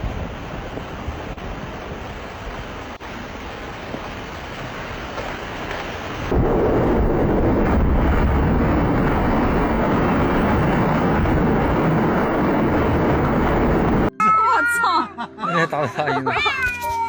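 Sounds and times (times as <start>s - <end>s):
loud dense rumbling: 6.2s - 14.1s.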